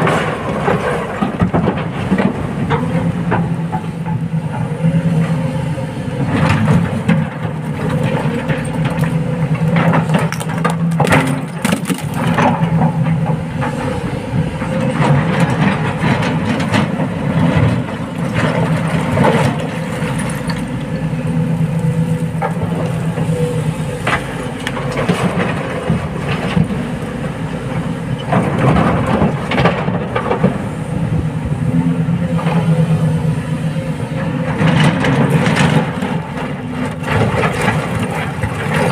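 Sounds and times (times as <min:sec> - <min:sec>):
excavator diesel engine running: 0:00.0 - 0:38.9
rocks knocking and clattering: 0:08.0 - 0:12.7.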